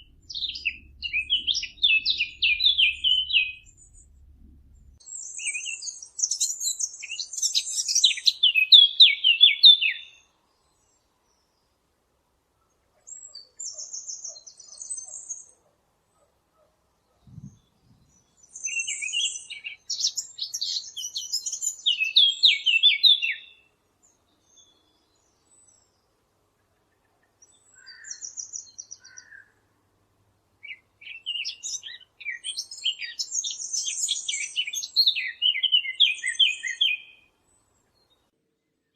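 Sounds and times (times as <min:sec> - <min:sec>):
warbler singing: 0:00.0 - 0:11.6, 0:17.2 - 0:26.1, 0:27.4 - 0:29.4, 0:30.6 - 0:38.3.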